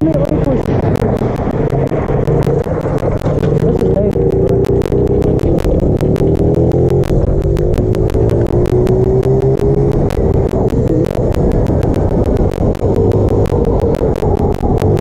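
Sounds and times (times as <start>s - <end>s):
low wind rumble: 0.0s - 15.0s
rapid sharp clicks: 0.0s - 15.0s
small motorbike engine running: 0.2s - 15.0s.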